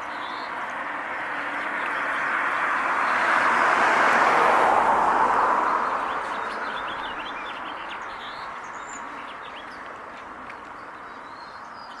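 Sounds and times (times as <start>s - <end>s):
small birds chirping: 5.9s - 12.0s.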